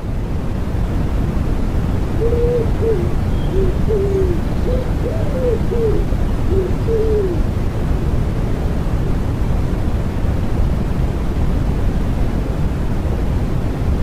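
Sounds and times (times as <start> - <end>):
steady noise: 0.0 - 10.4
pigeon cooing: 2.1 - 7.5.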